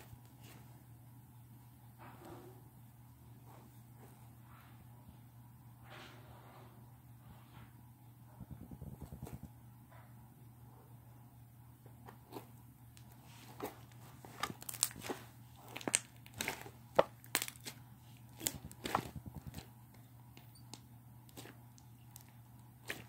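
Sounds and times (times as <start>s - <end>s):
slime squishing with sticky pops: 14.4s - 23.0s.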